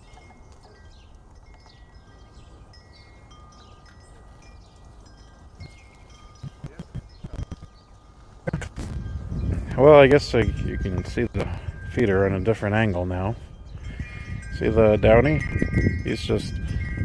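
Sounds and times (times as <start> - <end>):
handling knocks and rustles: 0.0 - 1.8
wind chimes ringing: 0.0 - 17.0
wind rumble on microphone: 0.0 - 17.0.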